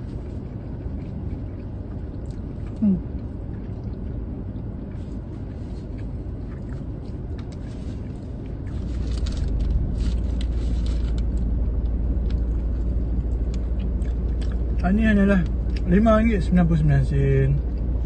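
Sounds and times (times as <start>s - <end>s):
eating noises: 0.0s - 14.8s
car engine idling: 1.4s - 18.0s
paper wrapper crinkling: 8.7s - 13.5s.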